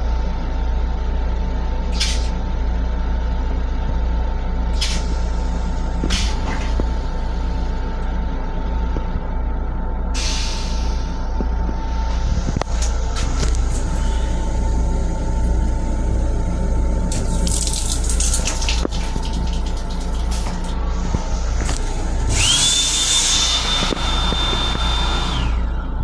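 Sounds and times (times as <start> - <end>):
railcar low rumble and hum: 0.0 - 26.0
air hissing: 10.2 - 11.2.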